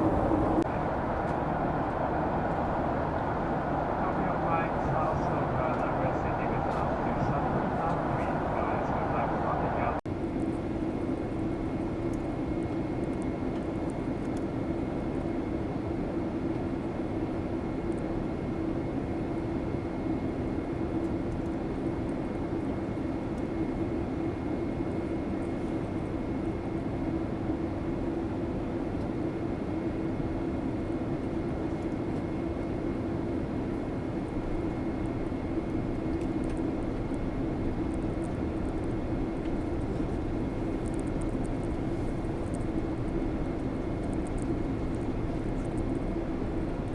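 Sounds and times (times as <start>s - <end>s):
faint high whine: 0.0s - 10.0s
rushing air: 0.0s - 10.0s
low hum: 0.0s - 14.4s, 33.7s - 46.9s
airliner engines droning: 0.0s - 46.9s.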